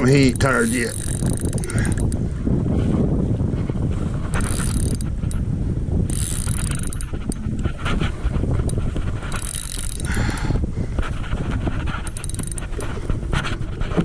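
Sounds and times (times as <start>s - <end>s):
fishing reel clicking and whirring: 0.0s - 2.2s, 4.3s - 8.0s, 8.6s - 13.0s.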